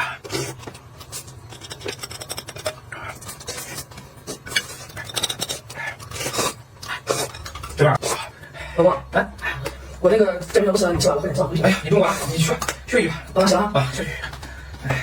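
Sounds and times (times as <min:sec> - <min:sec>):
utensils scraping and tapping dishes: 0:00.2 - 0:08.2.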